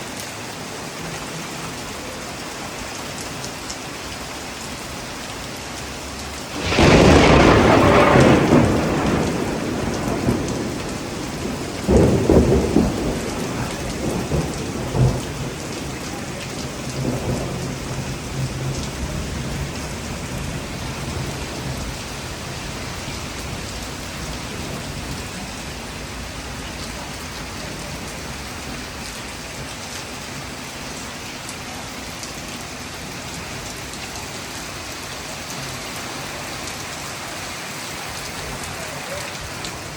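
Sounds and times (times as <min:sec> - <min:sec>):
steady rain: 0:00.0 - 0:39.9
thunder rumbling: 0:06.5 - 0:29.1.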